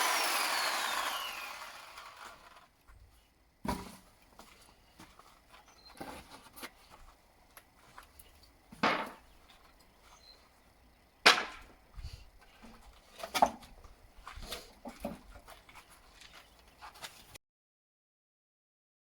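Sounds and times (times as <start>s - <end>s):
wooden boards knocking: 8.8s - 9.2s, 11.2s - 11.8s.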